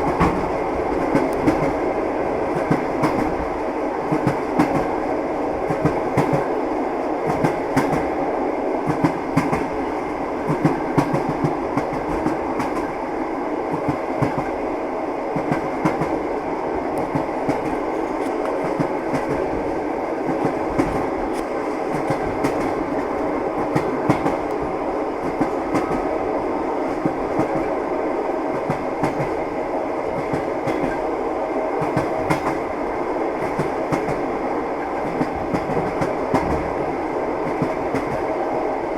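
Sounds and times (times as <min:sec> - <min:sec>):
railway carriage running noise: 0:00.0 - 0:38.9
train wheels clacking over rail joints: 0:20.3 - 0:22.8, 0:23.6 - 0:24.6, 0:30.2 - 0:31.0.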